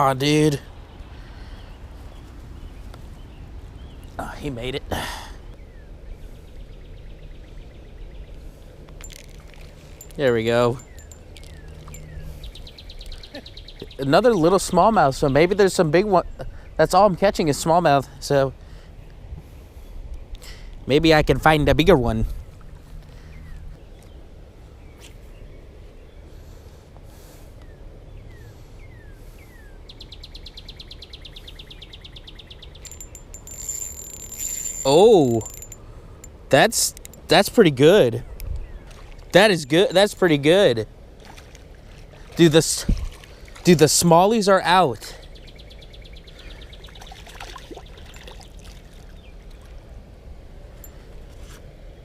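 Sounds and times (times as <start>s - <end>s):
river water trickling: 7.6s - 13.3s, 31.6s - 45.0s, 46.2s - 51.3s.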